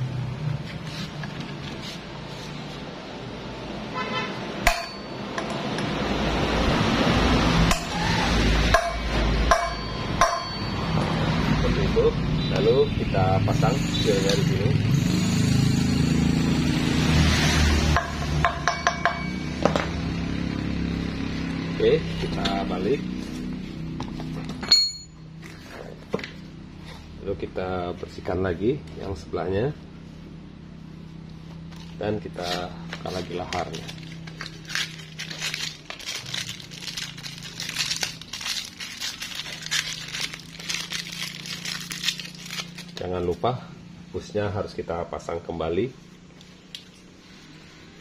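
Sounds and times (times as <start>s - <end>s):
hammer tapping metal: 4.6s - 5.9s, 8.7s - 10.9s, 17.9s - 19.9s.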